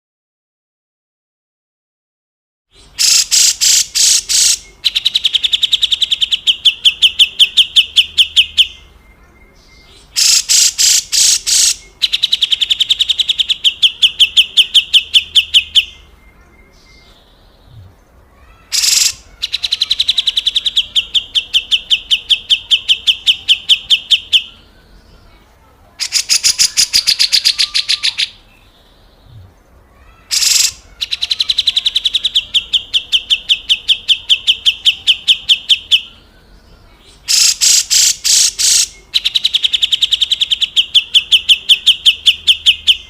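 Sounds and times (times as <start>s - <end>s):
bird rasping call and buzzy trill: 2.7s - 9.0s, 9.8s - 16.1s, 18.3s - 24.7s, 26.0s - 28.7s, 30.0s - 36.5s, 37.1s - 43.0s.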